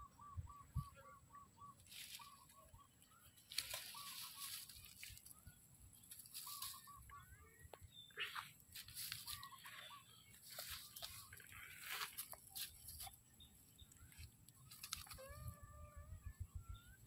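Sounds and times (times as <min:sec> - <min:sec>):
faint bird calls: 0:00.0 - 0:12.7.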